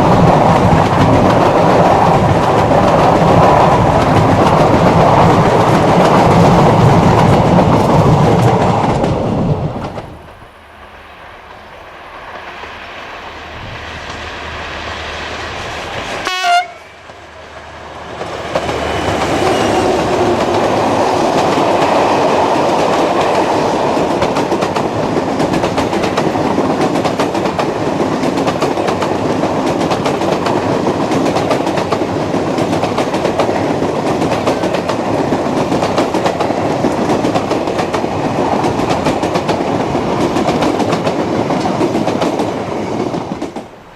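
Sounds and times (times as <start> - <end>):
train rolling on track: 0.0 - 43.9
train horn blast: 16.2 - 17.0.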